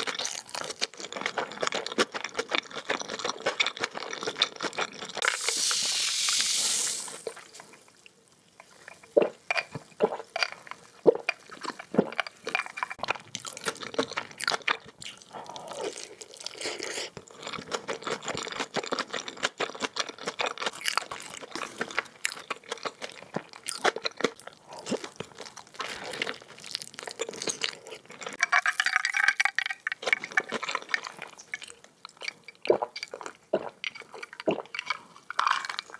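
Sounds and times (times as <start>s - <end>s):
hissing rustling burst: 5.3s - 7.3s.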